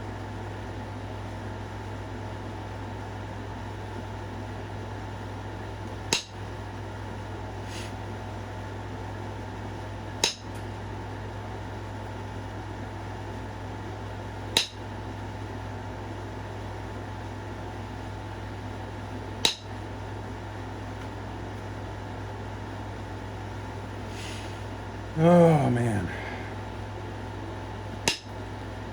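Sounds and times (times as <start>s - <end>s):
steady low hum: 0.0s - 28.9s
stone knapping clicks: 6.1s - 6.4s, 10.2s - 10.6s, 14.6s - 14.8s, 19.4s - 19.7s, 28.0s - 28.4s.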